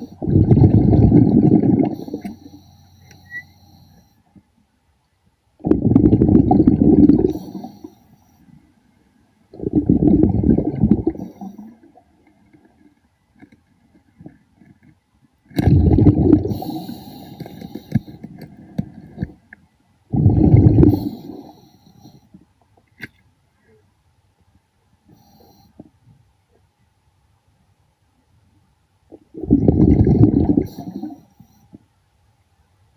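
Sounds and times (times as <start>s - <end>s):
breath bubbling underwater: 0.1s - 2.5s, 5.6s - 7.9s, 9.5s - 11.9s, 15.6s - 18.0s, 20.1s - 21.6s, 29.1s - 31.2s.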